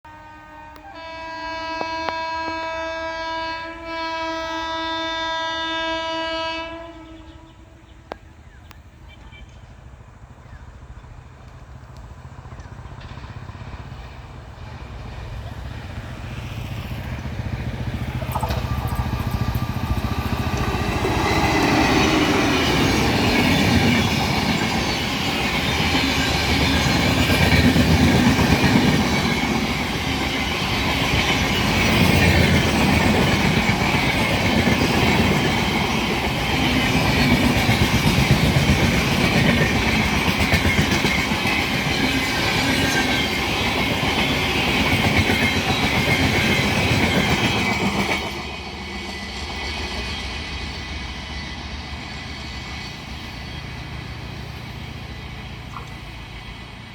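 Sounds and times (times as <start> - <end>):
train wheels clattering over rail joints: 16.6 - 53.2.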